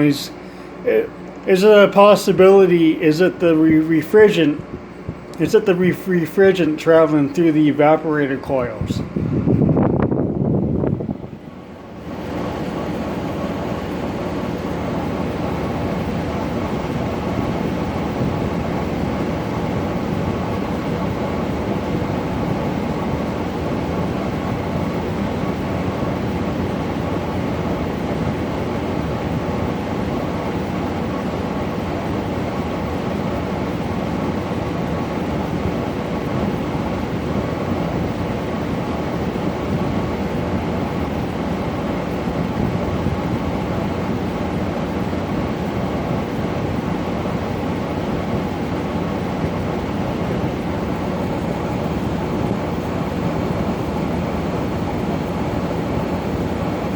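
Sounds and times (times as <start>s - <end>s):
air conditioner humming: 0.0s - 56.9s.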